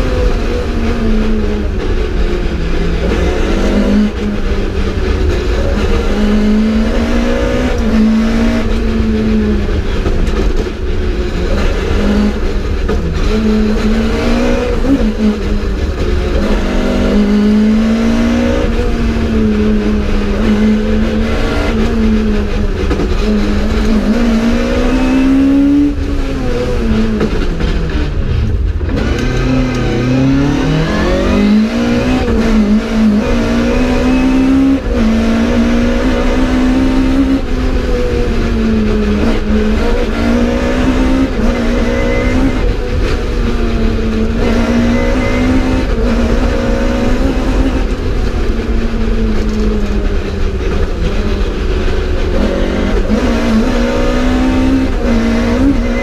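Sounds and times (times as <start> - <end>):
rally car engine revving: 0.0 - 56.0.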